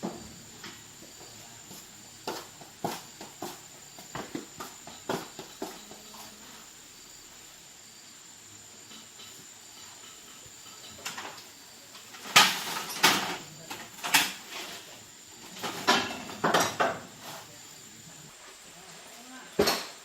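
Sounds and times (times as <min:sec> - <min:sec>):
hard objects knocking and clattering: 0:12.1 - 0:14.8, 0:15.5 - 0:17.2.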